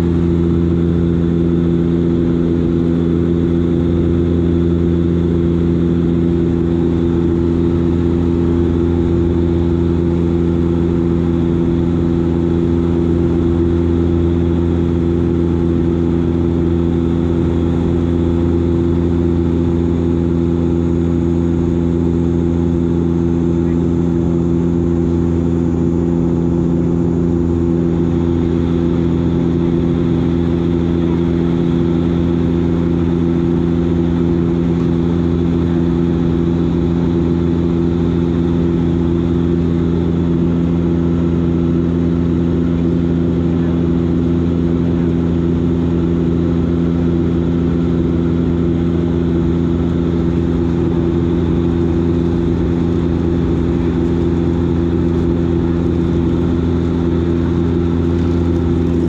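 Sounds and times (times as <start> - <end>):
turboprop engines droning: 0.0 - 59.0.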